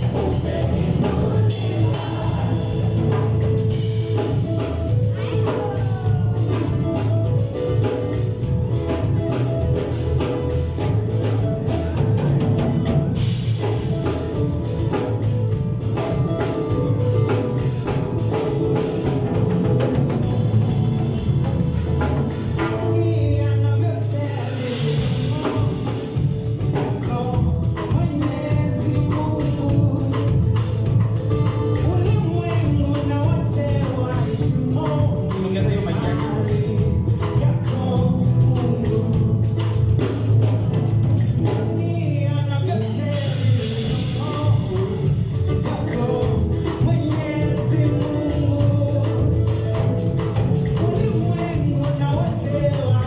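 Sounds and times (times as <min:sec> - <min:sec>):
singing: 0:00.0 - 0:03.9, 0:05.1 - 0:07.1
gospel band playing: 0:00.0 - 0:53.0.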